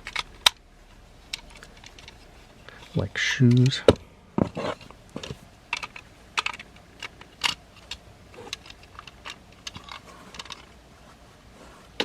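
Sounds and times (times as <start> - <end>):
plastic toy parts clicking: 0.0 - 0.6, 1.3 - 2.2, 2.8 - 4.0, 5.2 - 10.7.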